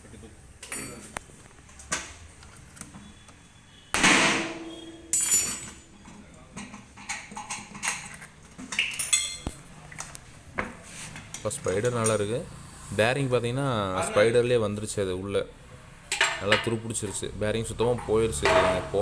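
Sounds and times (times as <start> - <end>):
loud ringing metal strikes: 4.0 - 5.7
metal knocks and clanks: 4.0 - 8.2, 17.9 - 19.0
small metal clinks: 4.7 - 9.5.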